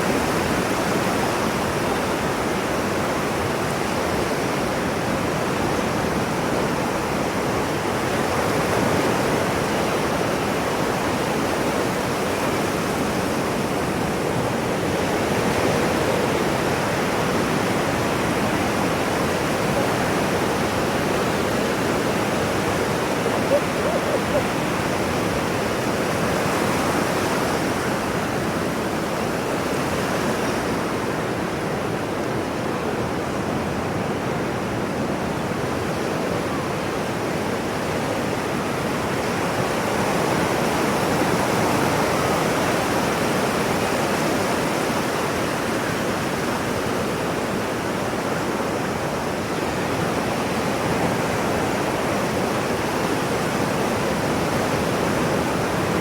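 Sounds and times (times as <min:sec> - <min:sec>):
ocean surf rushing: 0:20.3 - 0:27.0.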